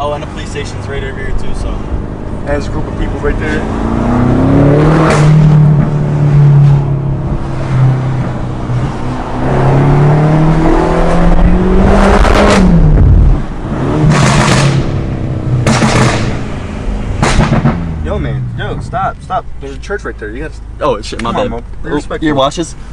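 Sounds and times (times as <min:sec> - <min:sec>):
car engine revving: 0:00.0 - 0:21.6
loud exhaust bursts: 0:13.7 - 0:18.0.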